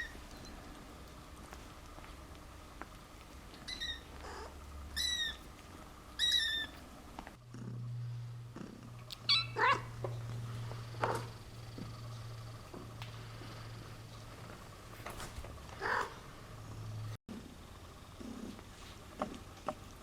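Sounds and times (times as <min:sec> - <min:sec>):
steady low hum: 0:00.0 - 0:20.0
kittens mewing: 0:09.1 - 0:11.4, 0:15.8 - 0:16.3.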